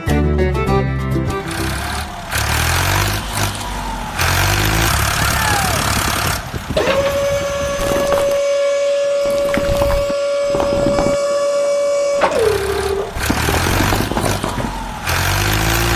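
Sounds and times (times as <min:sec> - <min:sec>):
vehicle engine running loudly: 0:01.2 - 0:08.4, 0:12.2 - 0:15.9.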